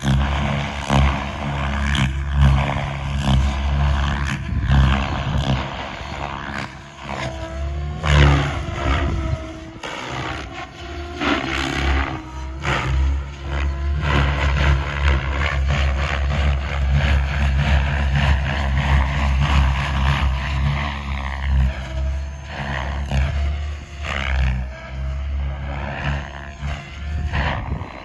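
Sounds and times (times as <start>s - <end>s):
electric motor whine: 0.0s - 28.0s
rotor blades whooshing: 0.0s - 28.0s.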